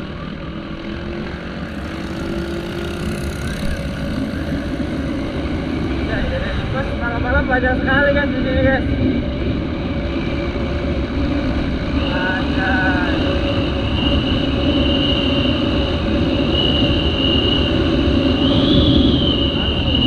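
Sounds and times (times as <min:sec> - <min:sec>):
motorbike engine running: 0:00.0 - 0:06.2
steady high whine: 0:00.0 - 0:20.0
wind noise on microphone: 0:01.7 - 0:20.0.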